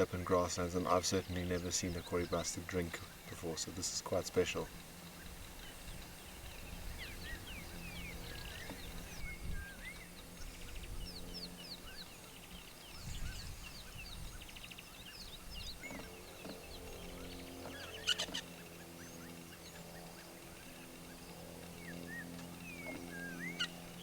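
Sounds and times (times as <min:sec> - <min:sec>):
birds chirping and whistling: 0:00.0 - 0:24.0
low background rumble: 0:00.0 - 0:24.0
low honking bird call: 0:15.2 - 0:24.0.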